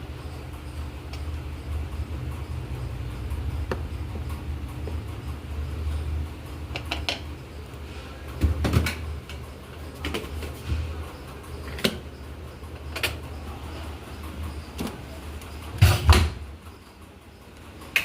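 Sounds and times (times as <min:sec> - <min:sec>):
steady low hum: 0:00.0 - 0:18.0
dishwasher clicks and knocks: 0:08.4 - 0:09.1, 0:15.8 - 0:16.5.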